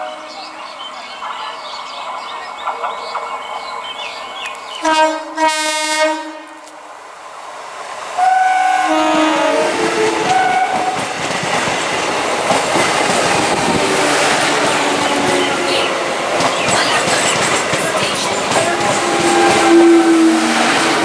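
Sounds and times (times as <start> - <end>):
train rushing past: 0.0 - 21.0
train horn blasts: 4.8 - 6.7, 8.2 - 11.0, 18.8 - 21.0
train wheels clattering over joints: 10.2 - 20.1.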